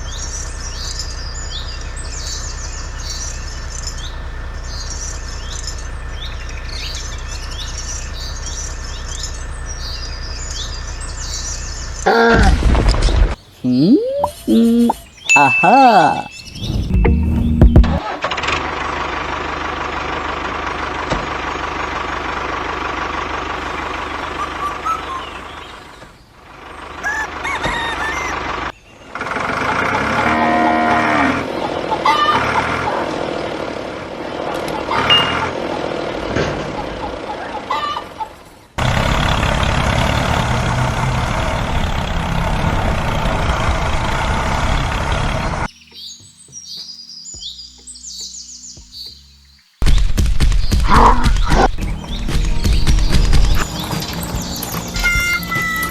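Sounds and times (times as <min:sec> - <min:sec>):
small engine running: 0:00.0 - 0:12.1, 0:18.0 - 0:37.7, 0:38.8 - 0:45.7
birds chirping: 0:00.0 - 0:18.0, 0:21.2 - 0:29.2, 0:34.4 - 0:40.3, 0:41.4 - 0:55.9
chickens clucking: 0:12.1 - 0:16.3, 0:26.8 - 0:28.7, 0:31.5 - 0:33.6, 0:34.4 - 0:38.6, 0:51.0 - 0:55.9
rooster crowing: 0:27.0 - 0:28.7.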